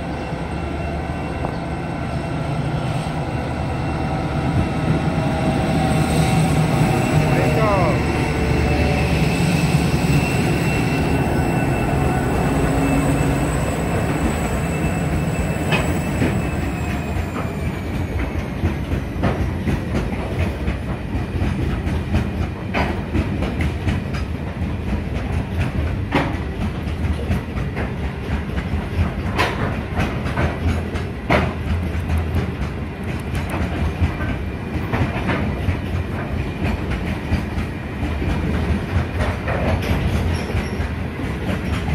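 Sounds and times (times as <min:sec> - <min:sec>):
locomotive engine rumble and whine: 0:00.0 - 0:19.4.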